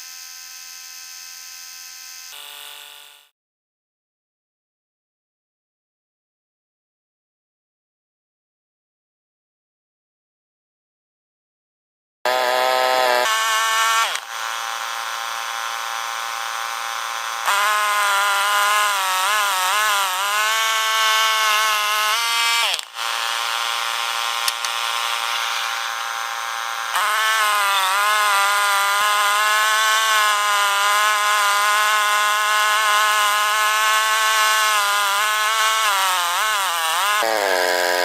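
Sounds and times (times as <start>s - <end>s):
sawmill cutting log: 12.3s - 38.0s.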